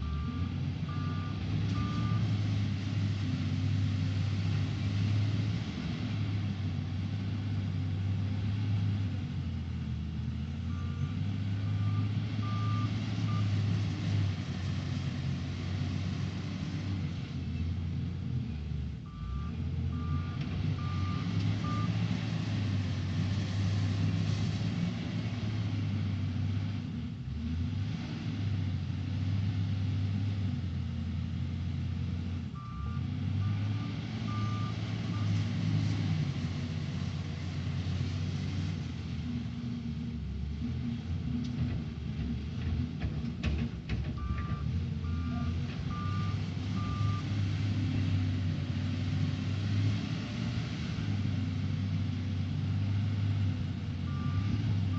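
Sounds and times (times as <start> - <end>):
diesel engine working under load: 0.0 - 54.9
reversing alarm beeps: 10.7 - 13.5, 19.1 - 21.9, 32.6 - 35.3, 44.2 - 47.2.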